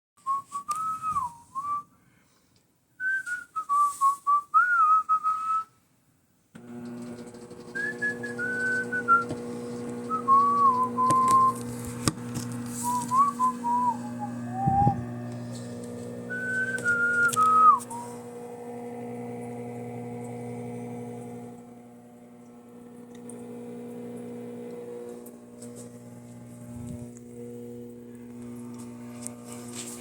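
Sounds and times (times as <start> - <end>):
person whistling a tune: 0.2 - 1.9, 3.0 - 5.8, 7.7 - 9.3, 10.1 - 11.6, 12.8 - 15.0, 16.3 - 18.2
steady low hum: 6.6 - 30.0.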